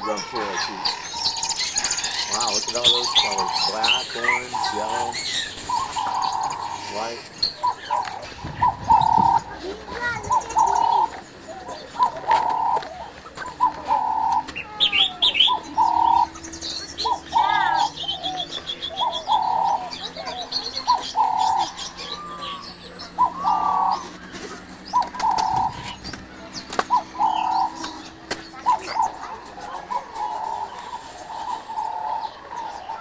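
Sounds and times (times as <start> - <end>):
fast bird trill: 0.0 - 33.0
higher bird chirps: 0.0 - 33.0.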